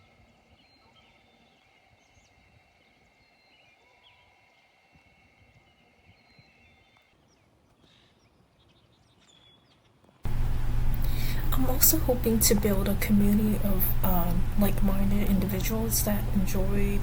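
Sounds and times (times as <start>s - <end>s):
faint chirps: 0.0s - 8.4s.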